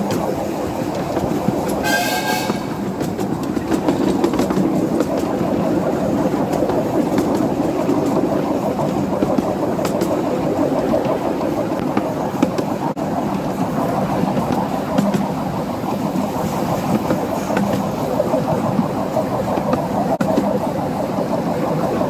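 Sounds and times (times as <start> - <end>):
clicks over rail joints: 0.0 - 13.0
train wheels rumbling on rails: 0.0 - 22.0.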